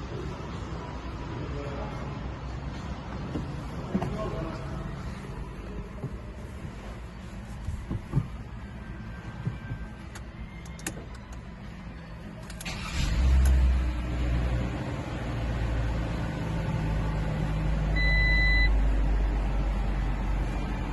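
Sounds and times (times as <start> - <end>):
engine idling: 7.6 - 20.9
short electronic beep: 18.0 - 18.8.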